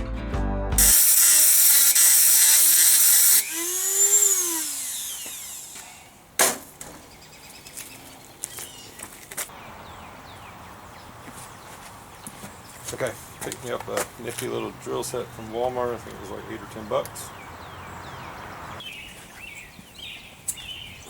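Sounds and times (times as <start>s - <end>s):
motor winding down: 0.8s - 6.2s
rotary tool grinding metal: 0.8s - 6.2s.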